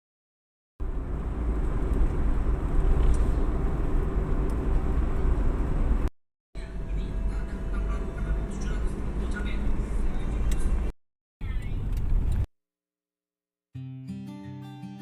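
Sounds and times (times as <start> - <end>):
vehicle travel rumble and hiss: 0.8 - 12.5.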